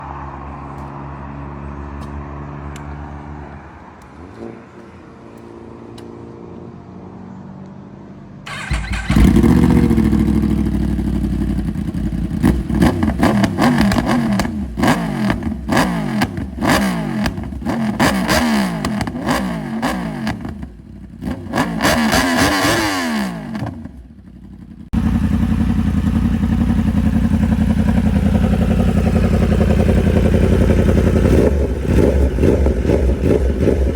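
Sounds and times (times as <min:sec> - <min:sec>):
motorcycle engine revving: 0:08.5 - 0:33.9.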